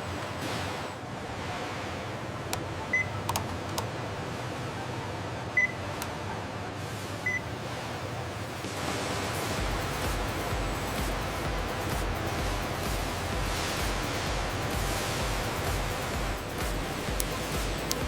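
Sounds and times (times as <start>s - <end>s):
steady background hum: 0.0s - 18.0s
short high electronic beeps: 7.2s - 7.5s.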